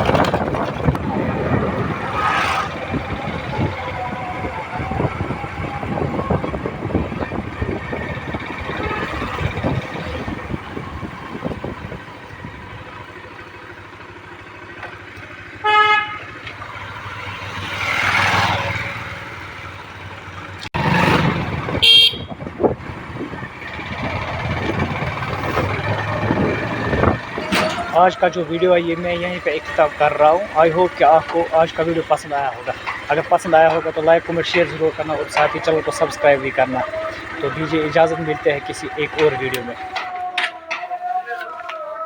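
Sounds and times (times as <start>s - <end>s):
vehicle passing: 0.0s - 12.8s, 16.7s - 40.7s
wind noise: 0.0s - 12.8s, 21.1s - 28.0s
motorcycle engine rumble: 0.0s - 42.0s
vehicle horn toot: 8.7s - 9.6s, 15.6s - 16.4s, 21.7s - 22.5s.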